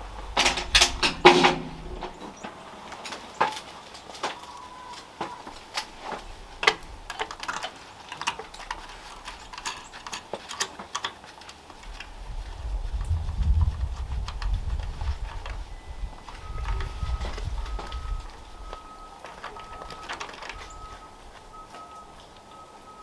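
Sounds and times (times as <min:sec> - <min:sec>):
low rumble: 0:00.0 - 0:02.2, 0:11.9 - 0:19.0.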